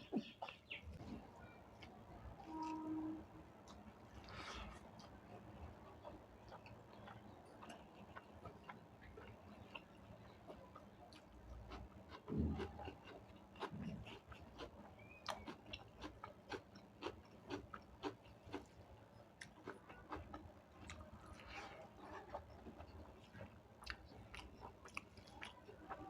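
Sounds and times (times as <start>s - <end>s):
person chewing food: 3.6s - 26.0s.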